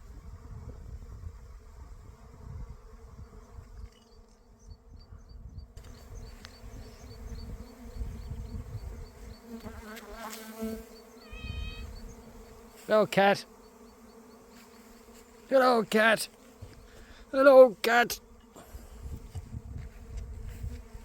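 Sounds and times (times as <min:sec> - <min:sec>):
bees buzzing: 0:00.1 - 0:21.0
short pitched call: 0:11.2 - 0:12.0.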